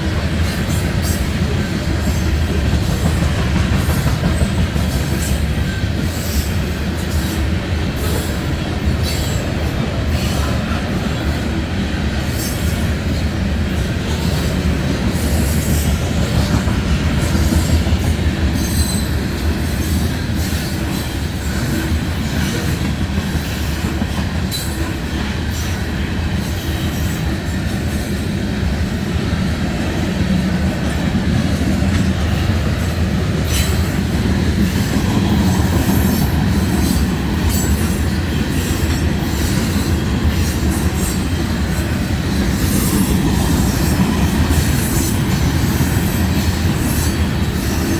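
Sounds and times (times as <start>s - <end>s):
freight train cars rolling: 0.0s - 47.9s
high wheel squeals: 18.6s - 19.2s.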